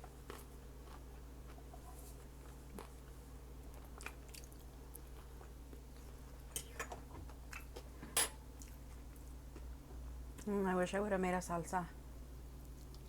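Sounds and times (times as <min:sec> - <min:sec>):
person chewing food: 0:00.0 - 0:06.8, 0:07.4 - 0:09.7.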